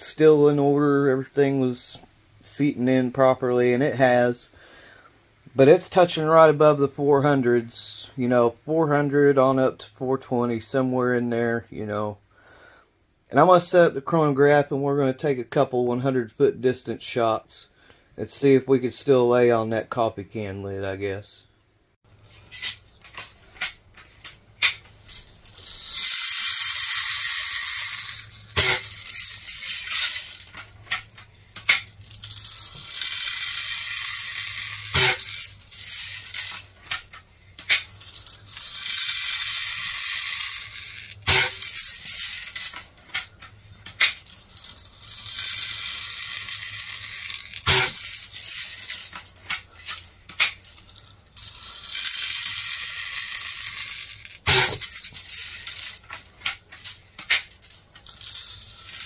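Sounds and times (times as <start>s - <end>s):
sharp click: 47.7s - 48.0s, 54.5s - 54.9s.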